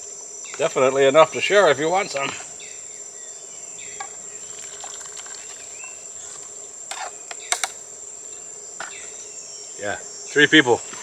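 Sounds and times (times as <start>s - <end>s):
high-pitched insect drone: 0.0s - 11.0s
light sharp clicks: 6.9s - 7.8s.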